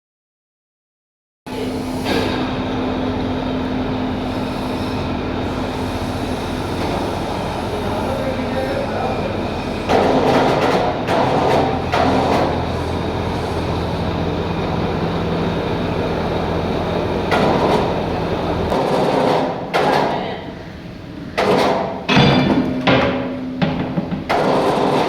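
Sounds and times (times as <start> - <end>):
low machine hum: 1.5 - 19.7
heavy knocks: 22.1 - 24.4.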